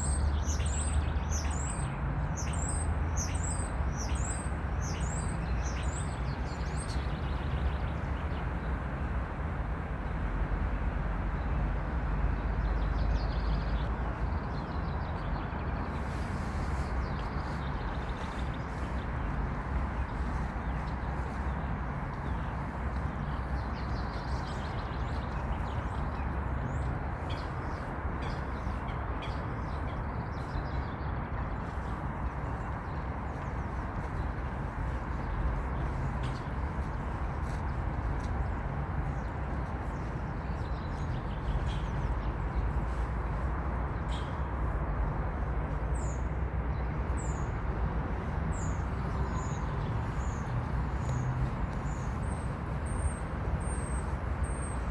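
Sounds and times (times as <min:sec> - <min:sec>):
birds chirping: 0:45.9 - 0:54.9.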